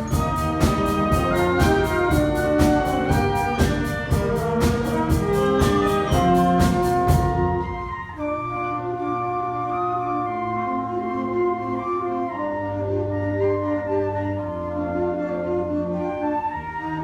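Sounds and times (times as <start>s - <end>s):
low bass line: 0.0s - 8.0s
percussive beat: 0.0s - 8.0s
wind band playing: 0.0s - 17.0s.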